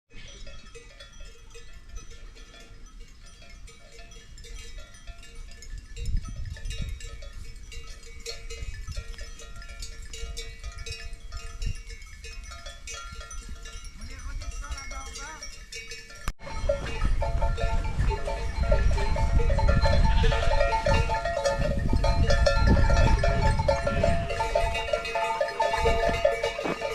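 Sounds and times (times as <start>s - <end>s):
small bells clinking: 0.1s - 26.9s
wind rumbling on microphone: 5.5s - 14.7s, 16.4s - 26.9s.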